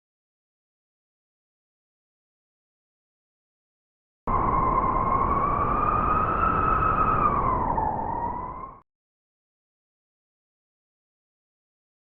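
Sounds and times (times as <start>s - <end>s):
blizzard wind howling: 4.3s - 8.8s.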